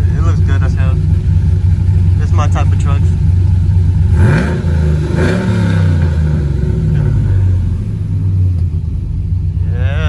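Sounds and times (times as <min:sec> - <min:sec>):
engine exhaust revving and rumbling: 0:00.0 - 0:10.0.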